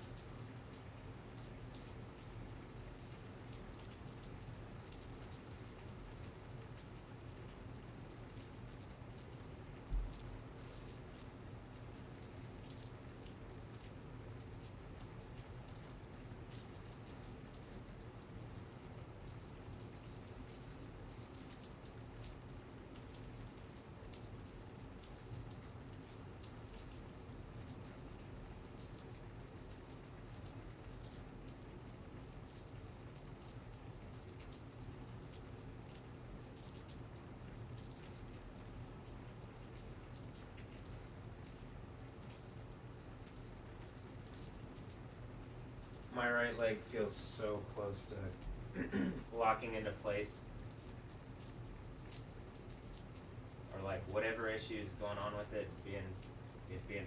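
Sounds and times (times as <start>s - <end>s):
rain falling: 0.1s - 57.0s
low steady hum: 43.0s - 57.0s.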